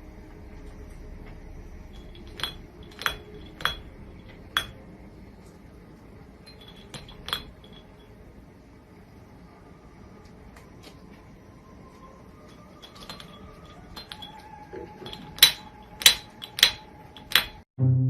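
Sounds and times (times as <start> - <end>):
glassy clinks of hard objects: 2.0 - 4.8, 6.5 - 8.1, 12.8 - 17.6.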